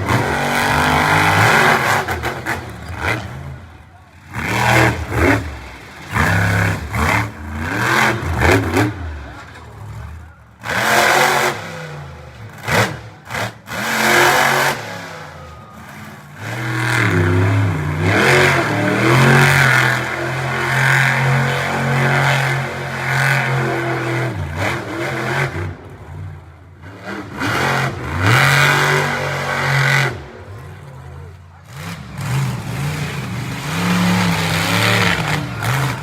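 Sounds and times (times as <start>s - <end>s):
monster truck engine revving: 0.0s - 36.0s.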